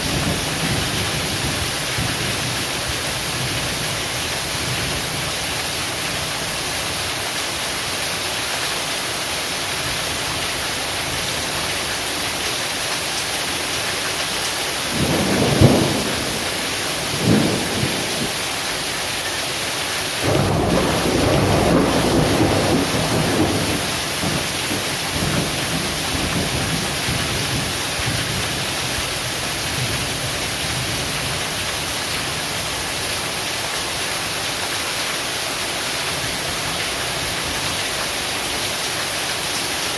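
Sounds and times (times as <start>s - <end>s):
heavy rain: 0.0s - 39.9s
thunder: 15.0s - 18.4s, 20.2s - 27.7s.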